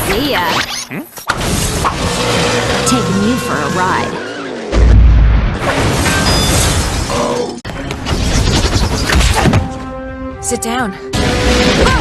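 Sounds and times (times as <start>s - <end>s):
crashes and impacts: 4.7s - 7.3s.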